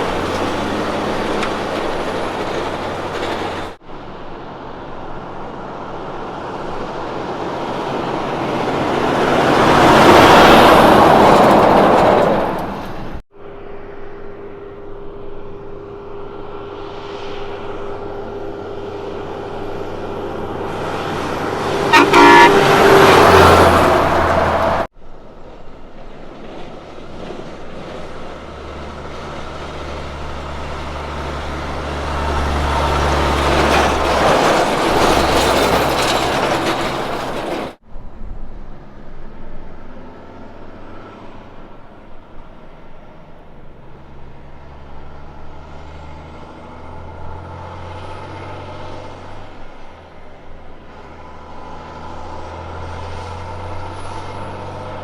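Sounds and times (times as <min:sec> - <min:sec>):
trucks passing: 0:00.0 - 0:55.0
engine running steadily: 0:13.4 - 0:22.6
truck horn blast: 0:20.5 - 0:24.9.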